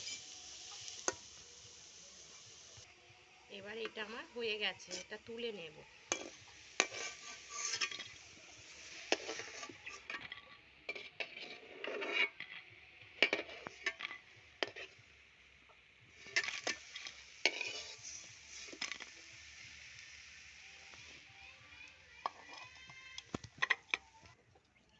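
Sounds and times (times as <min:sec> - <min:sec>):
metal spatula scraping a pan: 0:00.0 - 0:01.4, 0:04.8 - 0:15.1, 0:16.1 - 0:20.4, 0:22.2 - 0:22.8
hot oil hissing: 0:00.0 - 0:24.4.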